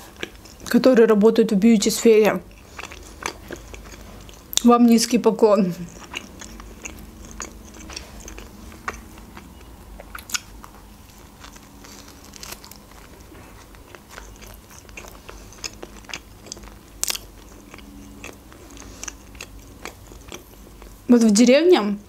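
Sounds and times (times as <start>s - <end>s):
wet chewing: 0.0s - 1.0s, 1.8s - 21.1s
crisp bread crunches: 5.8s - 21.0s.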